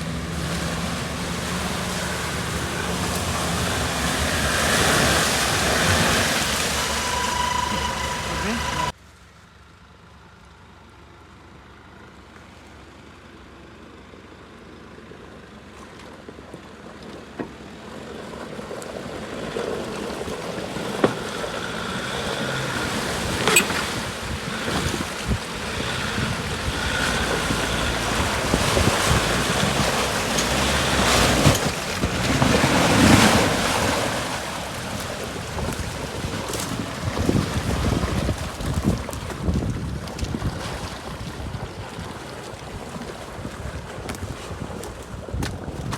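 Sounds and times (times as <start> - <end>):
vehicle splashing through water and mud: 0.0 - 45.9.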